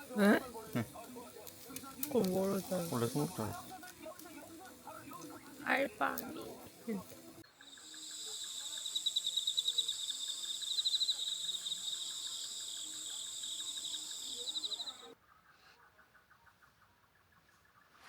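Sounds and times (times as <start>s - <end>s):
insects chorus pulsing: 7.5s - 15.1s.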